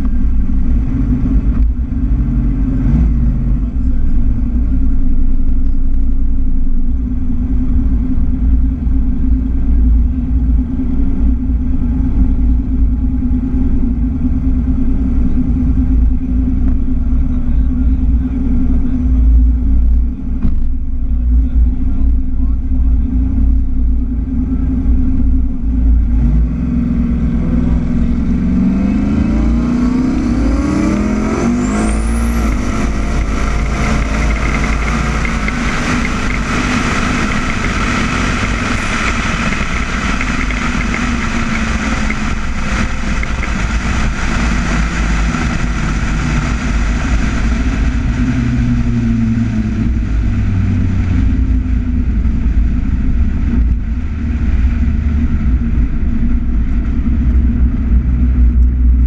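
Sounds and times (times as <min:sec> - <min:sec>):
car engine accelerating through gears: 0:00.0 - 0:59.0
high whine: 0:00.0 - 0:59.0.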